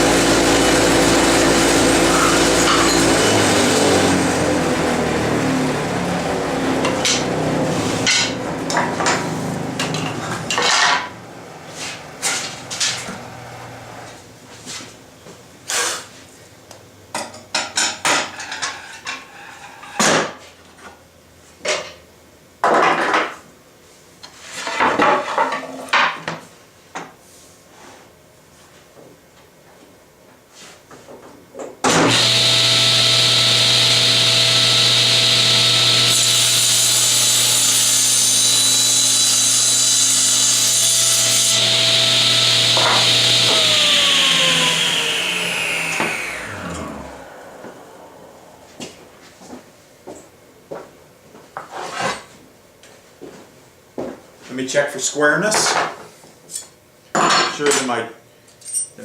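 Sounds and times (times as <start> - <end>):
table saw spinning down: 0.0 - 11.1, 31.9 - 49.6.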